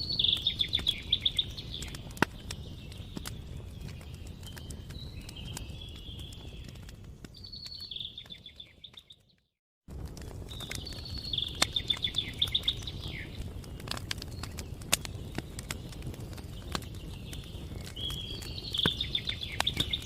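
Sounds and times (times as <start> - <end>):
songbird trilling: 0.0 - 2.0
campfire crackling and popping: 0.0 - 20.0.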